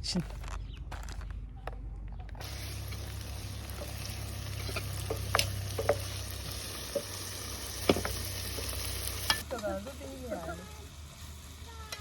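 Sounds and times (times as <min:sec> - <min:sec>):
food sizzling in a frying pan: 0:02.4 - 0:12.0.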